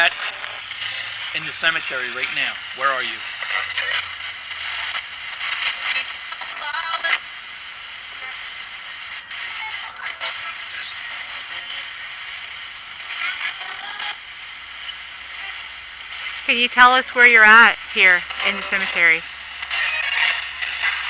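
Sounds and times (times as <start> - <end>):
radio static hiss: 0.0 - 21.0
snatches of voices: 16.5 - 19.2.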